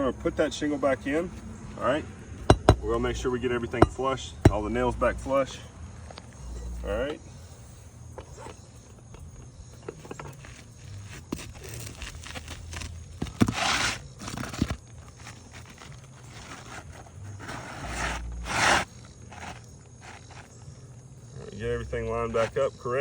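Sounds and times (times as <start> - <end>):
sharp knocks: 2.4 - 2.8
roof shingle scraping and crunching: 9.9 - 20.8.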